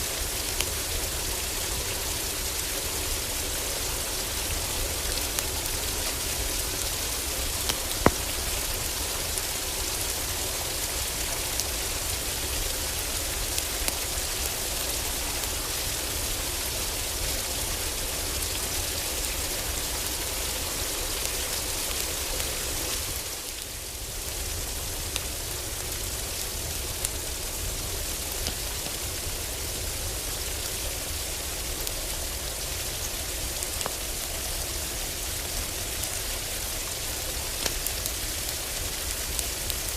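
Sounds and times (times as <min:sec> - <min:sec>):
heavy rain on a roof: 0:00.0 - 0:39.9
wood fire crackling pops: 0:07.4 - 0:09.4.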